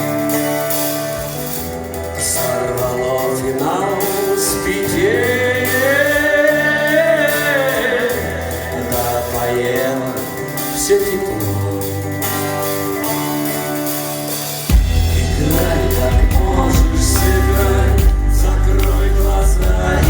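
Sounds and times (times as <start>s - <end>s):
instrumental accompaniment: 0.0s - 20.0s
man singing long wavering notes: 15.0s - 20.0s.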